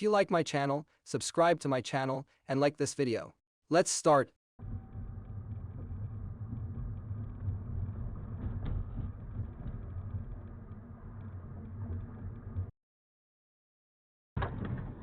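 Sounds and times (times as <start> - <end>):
car driving rumble from inside: 4.6 - 12.7.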